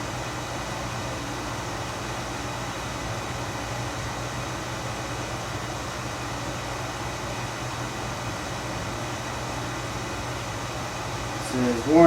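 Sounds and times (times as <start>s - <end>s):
even room hiss: 0.0s - 12.0s.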